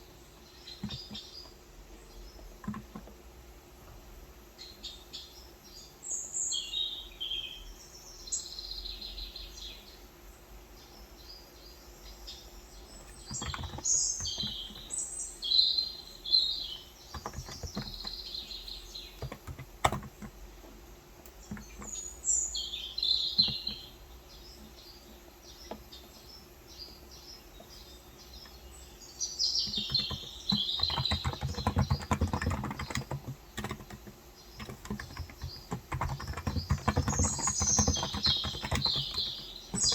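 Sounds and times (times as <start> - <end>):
birds chirping: 0.0 - 3.2, 10.7 - 39.9
soft rapid keyboard typing: 0.7 - 1.6, 2.4 - 3.2, 13.0 - 15.0, 17.0 - 20.7, 21.3 - 22.1, 23.2 - 23.9, 29.6 - 39.9.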